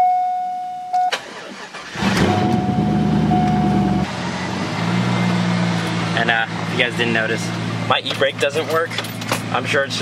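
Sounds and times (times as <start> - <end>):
car warning chime: 0.0 - 1.2, 2.3 - 4.1
engine cranking and starting: 1.1 - 3.4
car engine idling: 1.6 - 10.0.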